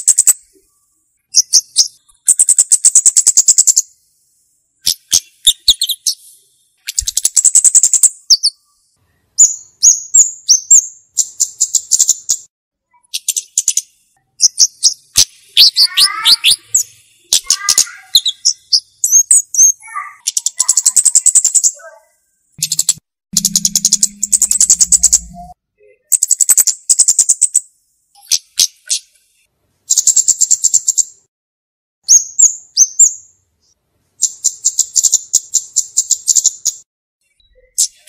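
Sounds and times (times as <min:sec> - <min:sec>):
bird ticking trills: 0:06.8 - 0:08.6, 0:09.4 - 0:21.8, 0:22.6 - 0:27.6
bird descending notes: 0:22.6 - 0:25.6
bird slurred notes: 0:22.6 - 0:25.6.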